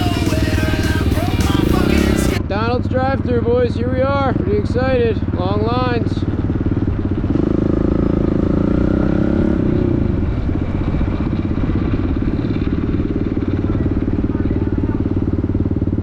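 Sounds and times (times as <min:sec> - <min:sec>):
small engine idling: 0:00.0 - 0:16.0.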